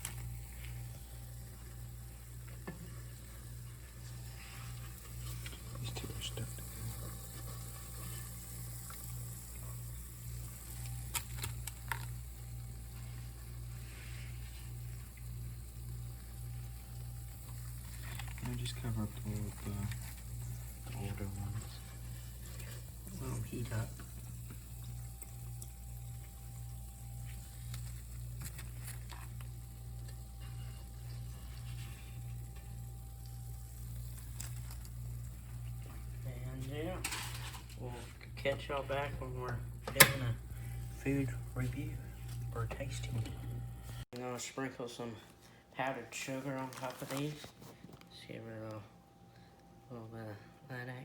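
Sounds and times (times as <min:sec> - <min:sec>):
faint crackles and clicks: 0:00.0 - 0:01.7, 0:10.4 - 0:13.2, 0:13.9 - 0:23.0, 0:24.0 - 0:36.2
hot oil bubbling: 0:00.0 - 0:37.2
steady low hum: 0:00.0 - 0:51.0.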